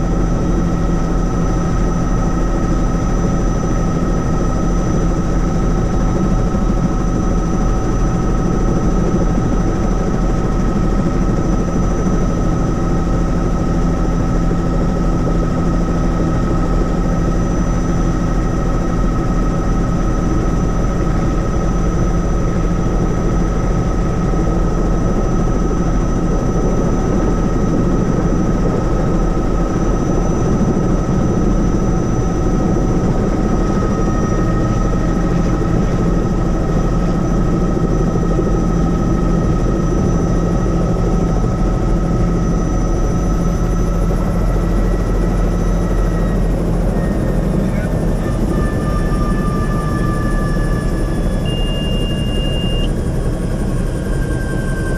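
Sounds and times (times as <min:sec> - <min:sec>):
helicopter rotor and engine rumble: 0:00.0 - 0:54.9
high whine: 0:31.7 - 0:54.9.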